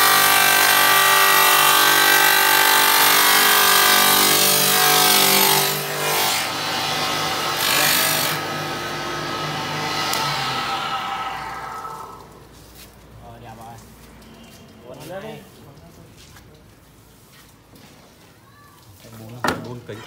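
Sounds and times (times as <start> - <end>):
stone cutting machine whining: 0.0 - 12.2.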